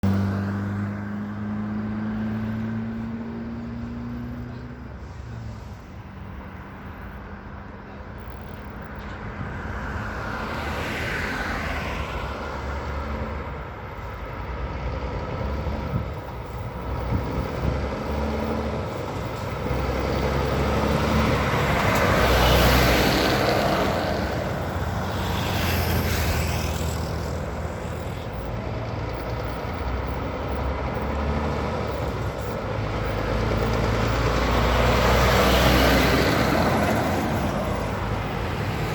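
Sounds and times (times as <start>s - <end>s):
vehicles passing by: 0.0s - 38.9s
diesel truck engine running: 13.0s - 25.2s, 26.9s - 38.9s.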